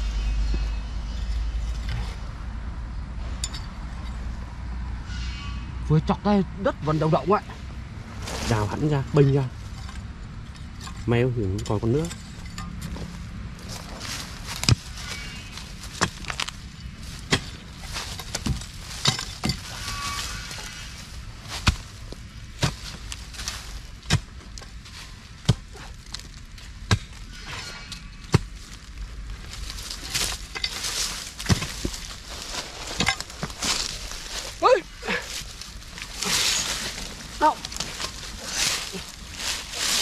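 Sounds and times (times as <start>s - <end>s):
loose soil crumbling: 12.8s - 27.4s, 28.1s - 40.0s
digging tool chopping earth: 21.4s - 24.6s, 25.4s - 27.2s, 30.0s - 33.9s.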